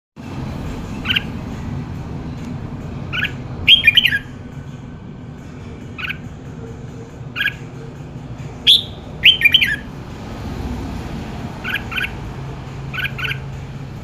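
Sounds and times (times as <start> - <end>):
bird calling: 3.1 - 4.3, 7.3 - 7.8, 8.6 - 9.9, 11.6 - 13.6.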